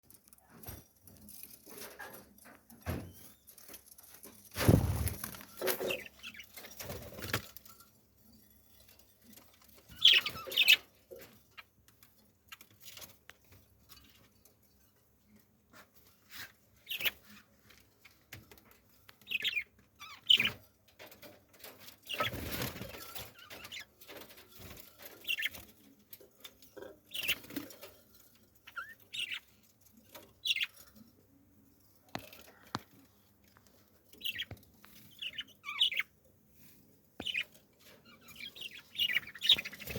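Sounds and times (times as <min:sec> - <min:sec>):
wings flapping: 0:04.5 - 0:06.1, 0:22.1 - 0:23.2
birds chirping: 0:05.0 - 0:07.1, 0:09.7 - 0:11.8, 0:18.0 - 0:20.6, 0:25.0 - 0:25.9, 0:26.8 - 0:27.9, 0:28.6 - 0:31.0, 0:34.0 - 0:36.2, 0:37.2 - 0:39.9.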